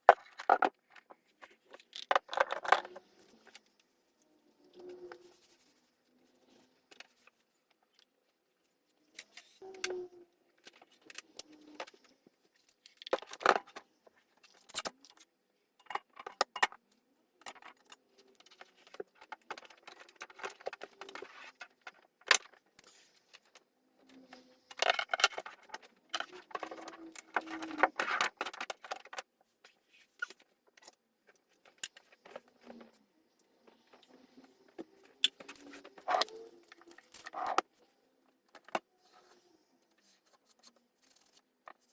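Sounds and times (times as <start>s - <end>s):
small objects clattering and clinking: 0.0s - 3.6s.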